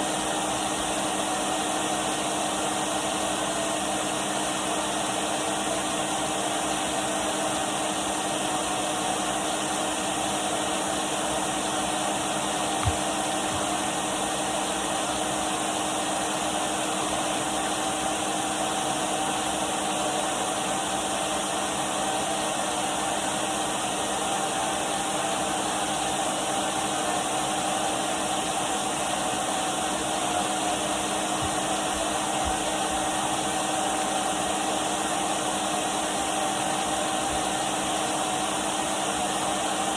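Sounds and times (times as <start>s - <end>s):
vacuum cleaner running: 0.0s - 39.9s
knock: 12.8s - 13.7s.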